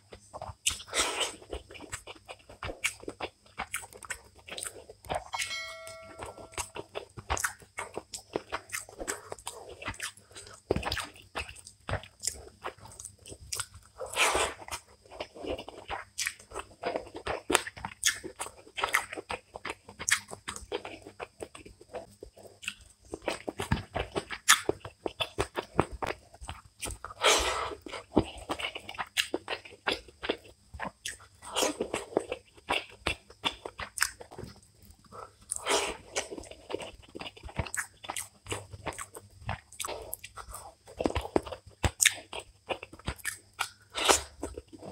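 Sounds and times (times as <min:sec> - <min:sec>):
person chewing food: 0:00.0 - 0:44.9
crunchy bites: 0:00.1 - 0:44.9
wet mouth clicks: 0:43.0 - 0:44.4.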